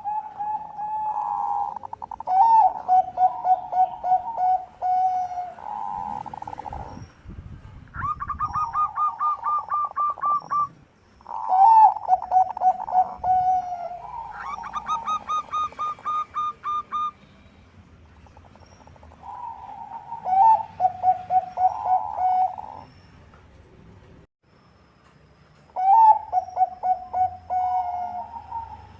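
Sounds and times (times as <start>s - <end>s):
dove cooing: 0.0s - 7.0s, 8.0s - 17.2s, 19.1s - 22.9s, 25.8s - 28.9s.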